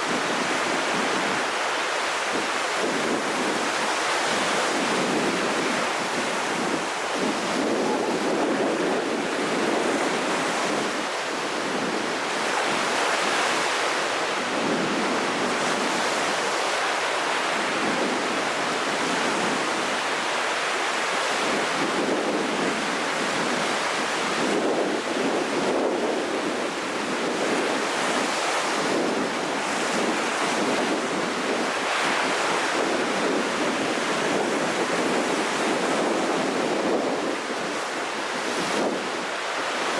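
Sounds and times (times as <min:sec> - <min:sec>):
wind blowing: 0:00.0 - 0:23.6
heavy surf breaking: 0:00.0 - 0:26.3.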